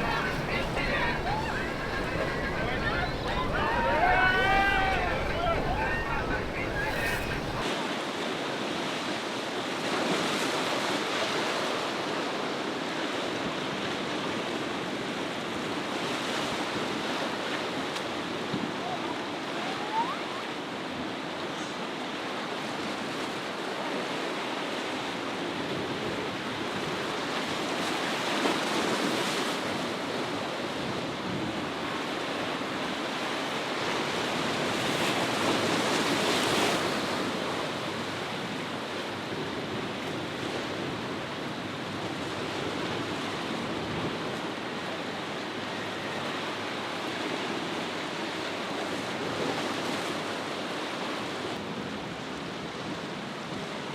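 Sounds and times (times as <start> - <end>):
ocean surf breaking: 0.0 - 7.6
wind buffeting microphone: 0.0 - 7.6.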